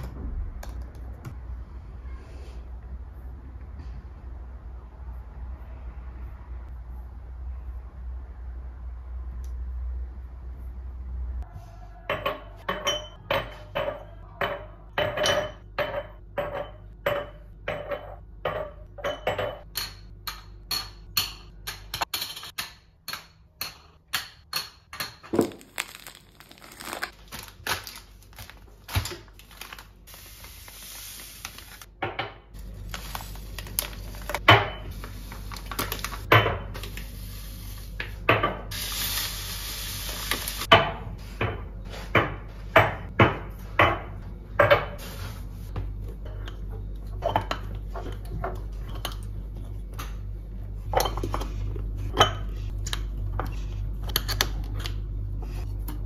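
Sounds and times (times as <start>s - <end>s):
dishes and utensils clinking: 12.1s - 20.1s.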